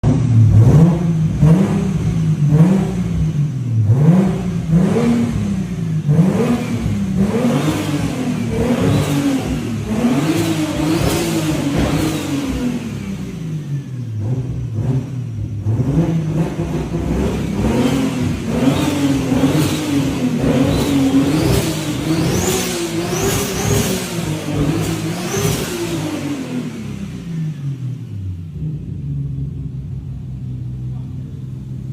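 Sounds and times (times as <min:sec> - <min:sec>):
car engine revving: 0:00.0 - 0:31.9.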